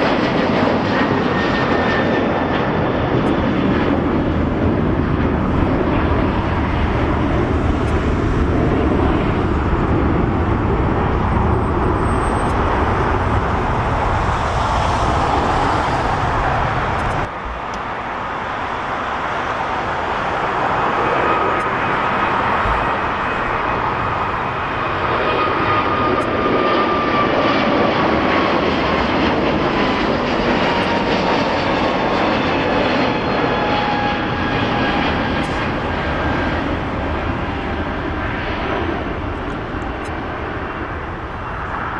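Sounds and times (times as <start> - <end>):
high jet engine whine: 0.0 - 41.9
jet engines rumbling: 0.0 - 41.9.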